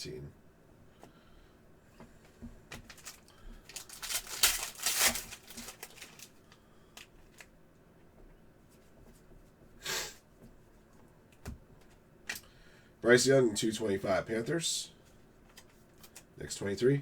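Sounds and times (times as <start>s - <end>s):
cards flicking and rustling: 2.7s - 6.4s.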